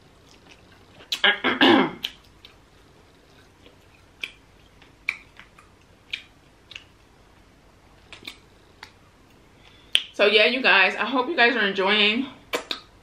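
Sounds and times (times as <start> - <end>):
person chewing: 0.2 - 1.3, 2.0 - 7.1, 8.0 - 9.0
wet mouth smacks: 4.2 - 6.9, 8.1 - 9.0, 12.5 - 12.9.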